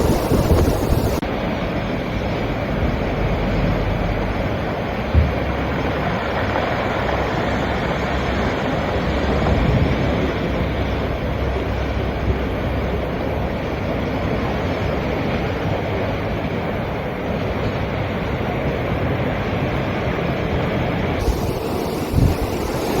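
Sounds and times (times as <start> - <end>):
waves washing against rocks: 0.0 - 1.2, 21.2 - 23.0
wind blowing: 0.0 - 1.2, 21.2 - 23.0.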